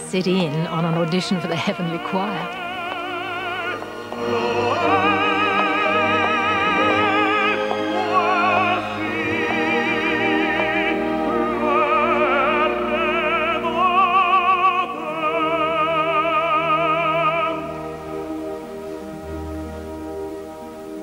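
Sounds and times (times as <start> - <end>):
operatic tenor singing: 0.0 - 19.1
orchestra playing: 0.2 - 21.0.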